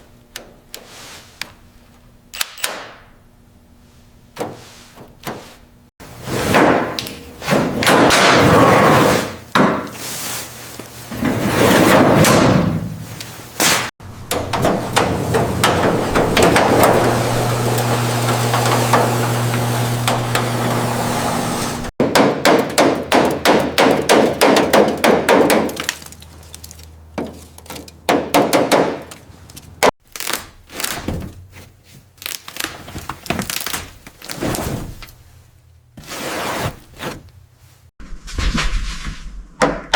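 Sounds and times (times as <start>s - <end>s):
heavy knocks on metal: 14.3s - 17.7s, 22.0s - 25.8s, 28.1s - 29.2s
clattering knocks: 14.3s - 20.6s.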